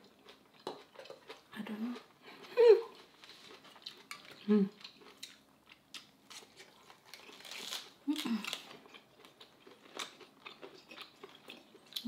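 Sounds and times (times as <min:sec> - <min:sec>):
lettuce crunching while chewing: 0:02.4 - 0:12.0
person humming: 0:04.4 - 0:04.8.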